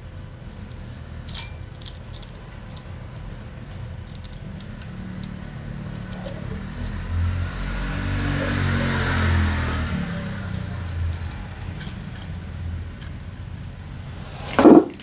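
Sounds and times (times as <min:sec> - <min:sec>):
light metallic clinks: 0:00.5 - 0:07.0, 0:10.8 - 0:12.4
vehicle passing by: 0:04.4 - 0:15.0.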